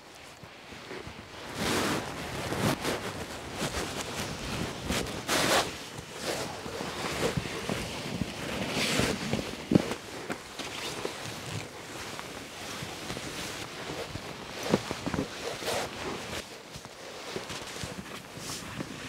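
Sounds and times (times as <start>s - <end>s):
rustling and scuffing footsteps: 0.0s - 19.0s
wind on microphone: 1.1s - 10.0s.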